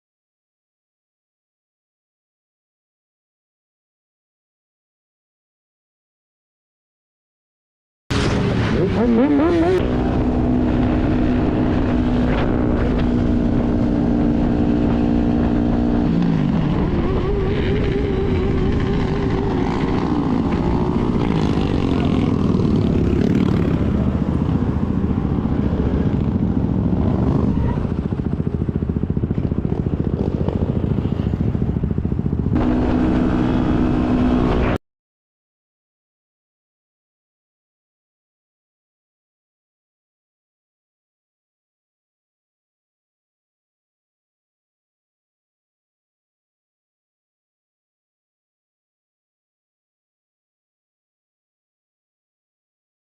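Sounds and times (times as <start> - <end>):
motorcycle engine revving: 8.1 - 34.8
steady rushing noise: 8.1 - 34.8.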